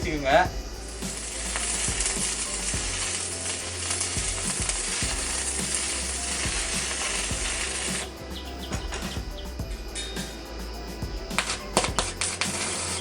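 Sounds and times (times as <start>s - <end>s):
arc welding crackling hiss: 0.0s - 13.0s
welding pops: 0.0s - 13.0s.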